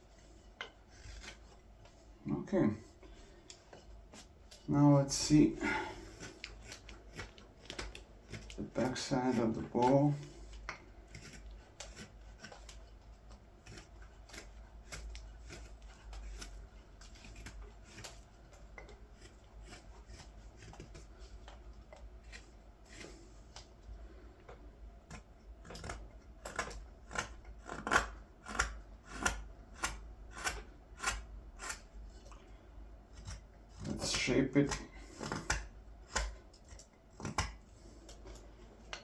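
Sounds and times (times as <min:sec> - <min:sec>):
knife slicing green wood: 0:05.3 - 0:23.7, 0:25.1 - 0:32.1, 0:33.1 - 0:38.4.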